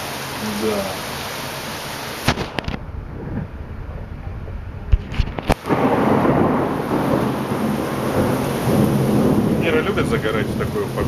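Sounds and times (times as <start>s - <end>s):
heavy rain: 0.0s - 11.0s
sharp thunder cracks: 2.2s - 11.0s
thunder rumbling: 2.2s - 11.0s.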